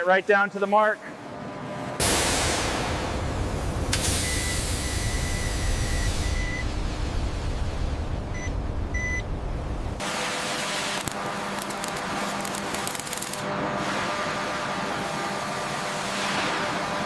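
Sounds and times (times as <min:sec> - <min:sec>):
low hum: 0:02.0 - 0:10.1
high electronic beeps: 0:04.2 - 0:06.7.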